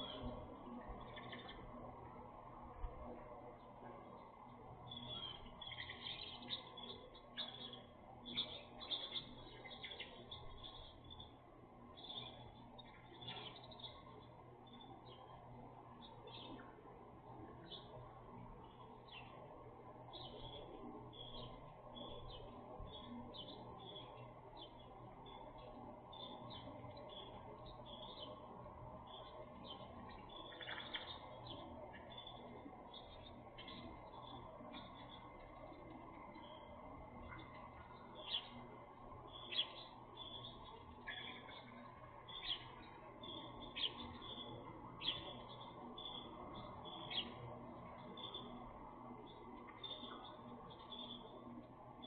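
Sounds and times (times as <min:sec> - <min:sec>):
low background noise: 0:00.0 - 0:52.0
small birds chirping: 0:00.0 - 0:52.0
soft high twittering: 0:17.6 - 0:52.0.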